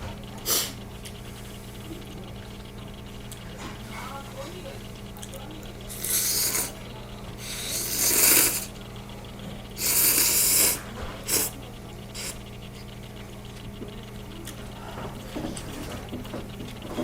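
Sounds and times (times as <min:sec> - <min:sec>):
steady low hum: 0:00.0 - 0:17.0
person slurping noodles: 0:05.9 - 0:06.7, 0:07.4 - 0:08.7, 0:09.8 - 0:11.5.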